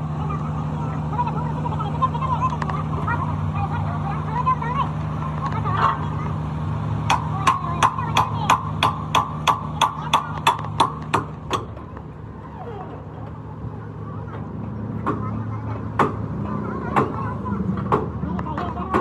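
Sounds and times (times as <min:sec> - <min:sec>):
engine humming: 0:00.0 - 0:19.0
hammer striking metal: 0:07.1 - 0:11.8.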